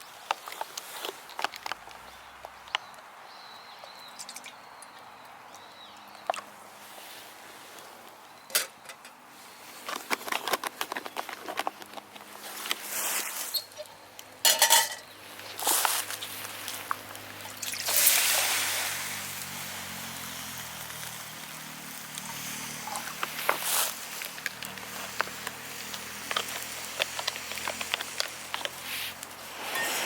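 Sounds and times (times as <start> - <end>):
clinks and knocks: 14.5 - 15.1.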